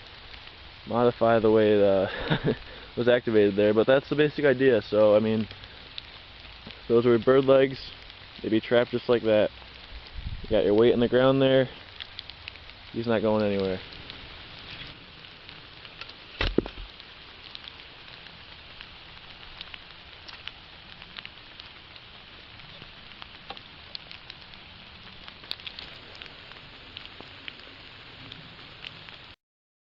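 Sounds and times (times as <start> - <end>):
small ticks and crackles: 0.0 - 29.4
steady hiss: 0.0 - 29.4
dull thump: 16.4 - 16.9.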